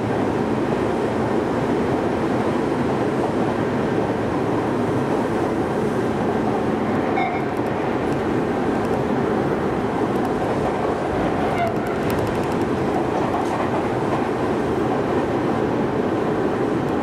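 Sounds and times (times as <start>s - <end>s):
train wheels running on rails: 0.0s - 17.0s.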